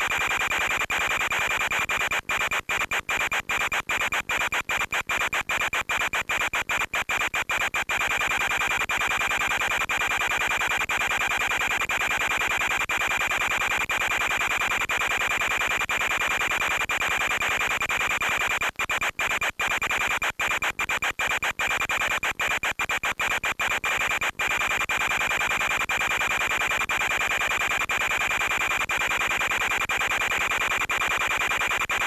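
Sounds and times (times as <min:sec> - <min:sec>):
radio static hiss: 0:13.7 - 0:32.0.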